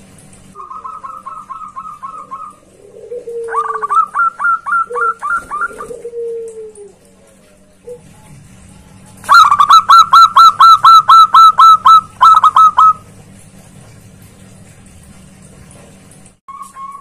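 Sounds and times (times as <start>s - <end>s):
dove calling: 0.6s - 8.2s, 9.2s - 13.1s.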